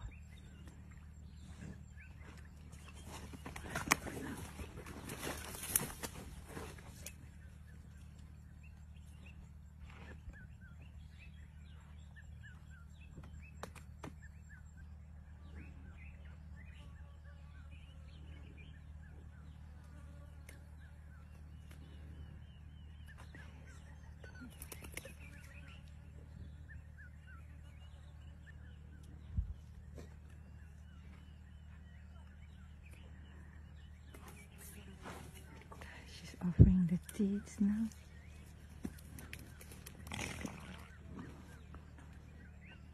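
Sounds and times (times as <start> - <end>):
birds chirping: 0.0 - 42.9
steady low hum: 0.0 - 42.9.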